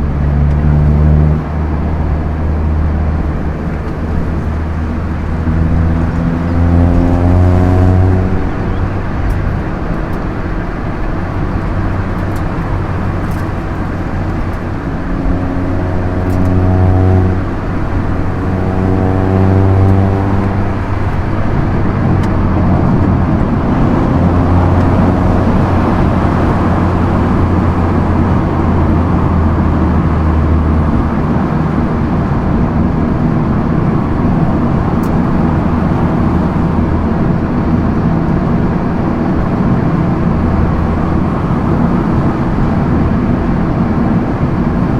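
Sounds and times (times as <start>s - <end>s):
car engine accelerating: 0.0s - 44.9s
road noise: 0.0s - 44.9s.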